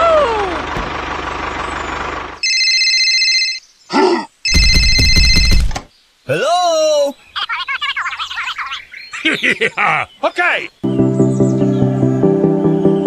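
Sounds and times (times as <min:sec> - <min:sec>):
engine running: 0:00.0 - 0:02.4
electronic ringing tone: 0:02.4 - 0:03.6, 0:04.5 - 0:05.8.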